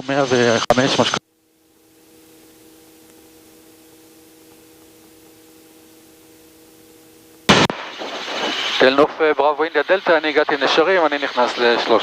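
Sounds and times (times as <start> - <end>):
intercom hiss: 0.0 - 1.2, 7.5 - 12.0
low hum of steady tones: 0.0 - 12.0.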